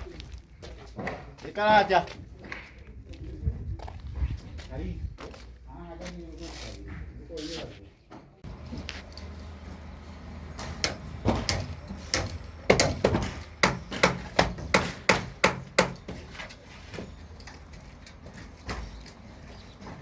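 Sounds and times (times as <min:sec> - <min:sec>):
hammer blows: 0:10.4 - 0:16.3.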